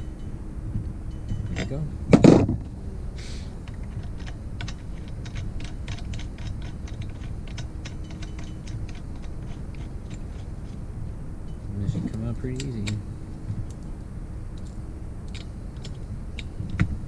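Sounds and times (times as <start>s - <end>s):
hand tools clicking on engine parts: 3.6s - 13.9s, 14.5s - 17.0s.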